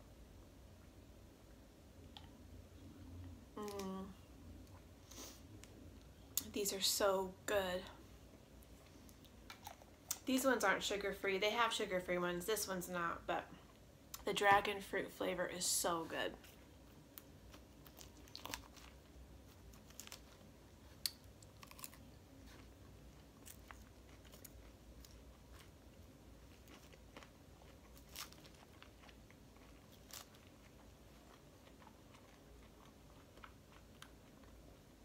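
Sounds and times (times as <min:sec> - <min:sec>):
crunching and chewing salad: 0:08.6 - 0:10.2, 0:16.4 - 0:35.0.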